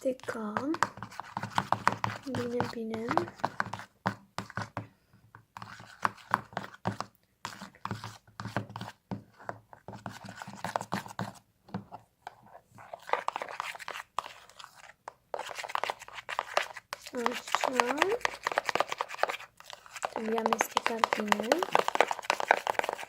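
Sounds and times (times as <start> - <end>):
stirring foam in a bowl: 0.0 - 23.0.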